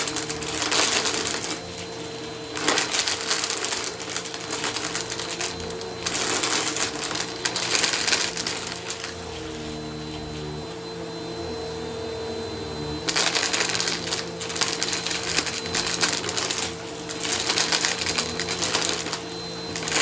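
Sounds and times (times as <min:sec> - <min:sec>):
vacuum cleaner motor humming: 0:00.0 - 0:20.0
debris crackling up vacuum intake: 0:13.0 - 0:20.0.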